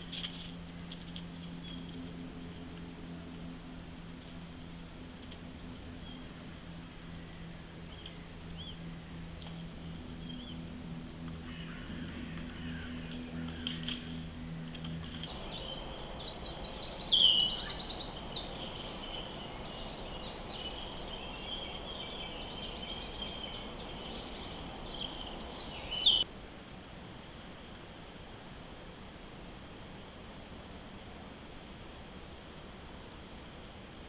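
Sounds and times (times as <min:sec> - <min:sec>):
birds chirping and trilling: 0:05.8 - 0:26.3.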